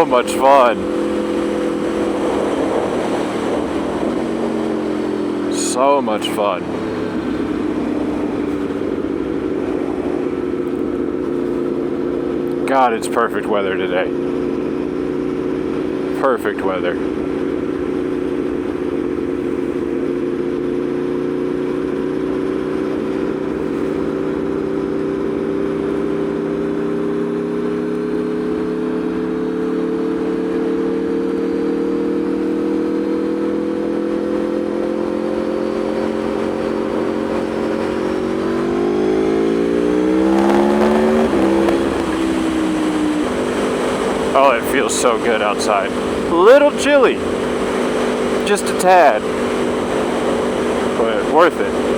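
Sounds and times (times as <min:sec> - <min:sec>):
motorcycle engine cruising and revving: 0:00.0 - 0:51.9
wind noise: 0:00.7 - 0:05.6.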